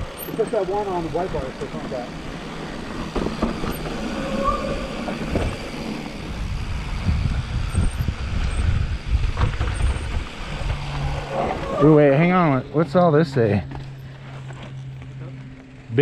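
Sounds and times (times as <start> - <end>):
bike rumbling and rattling: 0.0 - 16.0
wind on microphone: 3.3 - 11.8.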